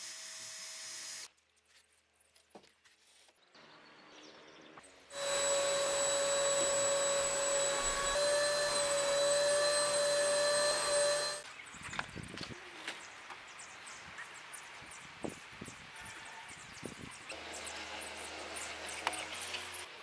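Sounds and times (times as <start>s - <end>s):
small electric motor whining: 0.0s - 1.3s, 5.1s - 11.4s.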